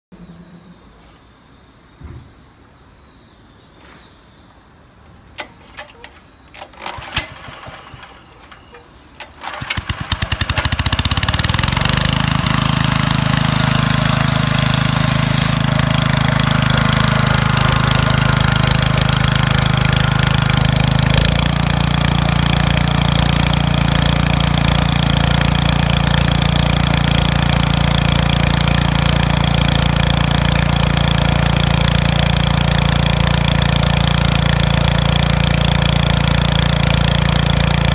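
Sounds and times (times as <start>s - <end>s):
compressor engine running: 5.4s - 37.9s.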